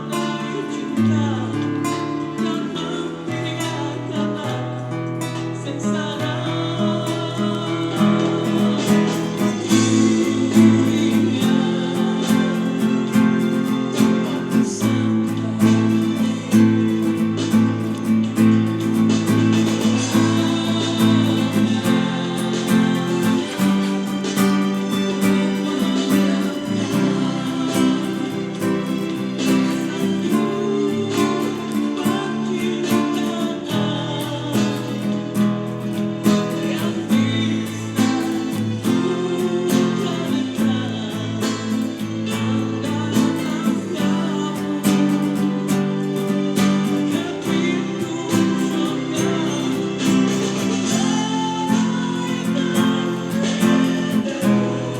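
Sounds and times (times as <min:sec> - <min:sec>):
classical guitar playing: 0:00.0 - 0:54.9.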